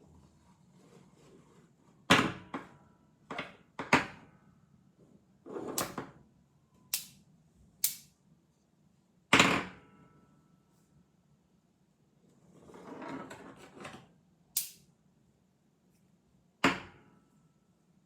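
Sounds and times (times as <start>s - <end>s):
magnets snapping together: 7.0s - 7.2s, 7.8s - 8.1s, 14.6s - 14.8s.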